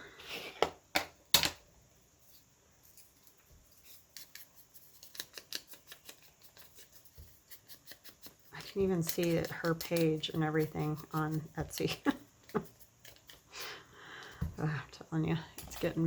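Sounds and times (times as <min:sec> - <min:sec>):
scissors snipping paper: 0:03.9 - 0:13.4.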